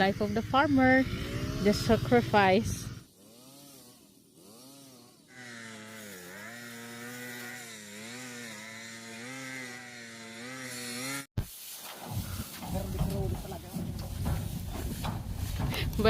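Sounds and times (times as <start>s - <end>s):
small petrol engine running: 0.0s - 11.3s.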